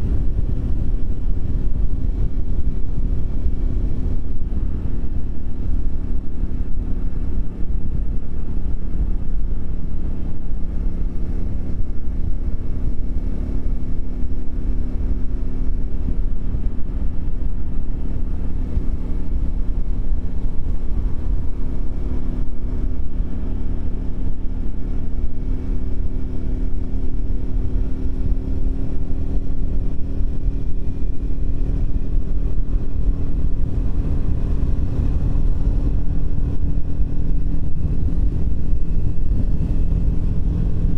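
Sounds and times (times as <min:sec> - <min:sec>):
motorcycle engine running: 0:00.0 - 0:40.9
wind rumble on microphone: 0:00.0 - 0:40.9.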